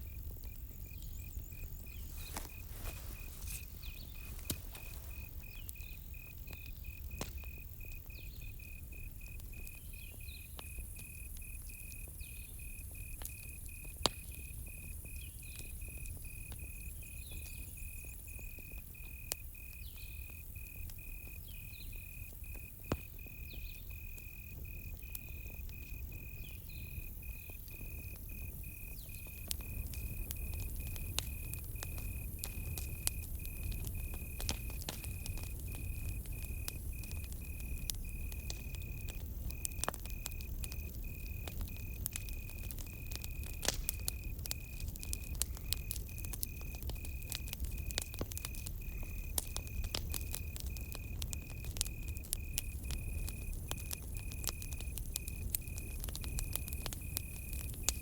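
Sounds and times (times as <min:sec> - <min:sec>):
campfire crackling and popping: 0:00.0 - 0:58.0
crickets chirping: 0:00.0 - 0:58.0.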